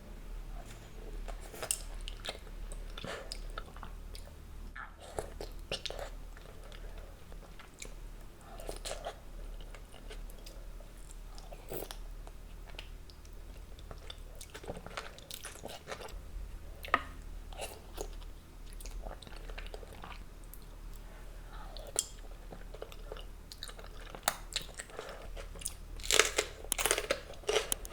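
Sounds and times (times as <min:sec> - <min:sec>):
person chewing and biting food: 0:21.8 - 0:27.9
crunchy clicks: 0:26.0 - 0:27.9.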